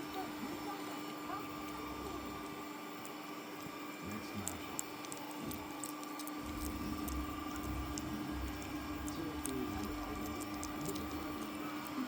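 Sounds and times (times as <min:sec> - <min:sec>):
dog teeth clicking on a chew: 0:03.0 - 0:12.0.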